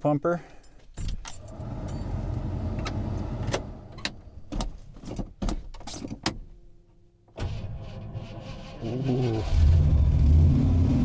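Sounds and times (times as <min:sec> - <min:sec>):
clunks and knocks: 0:01.0 - 0:06.6
engine starter cranking: 0:07.4 - 0:10.0.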